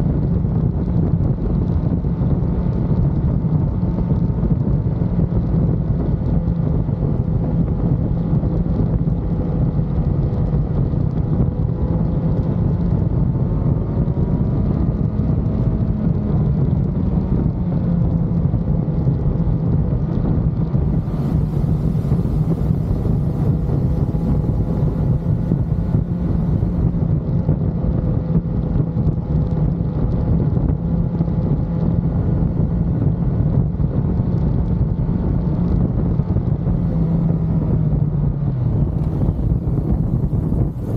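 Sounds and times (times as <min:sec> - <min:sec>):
motorcycle engine running: 0:00.0 - 0:40.9
wind buffeting microphone: 0:00.0 - 0:40.9.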